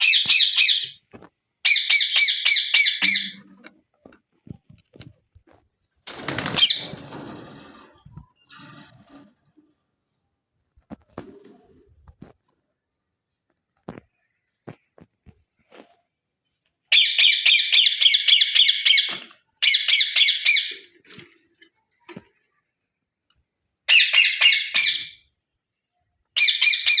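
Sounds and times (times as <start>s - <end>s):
parrot chicks squawking: 0.0s - 1.0s, 1.7s - 3.4s.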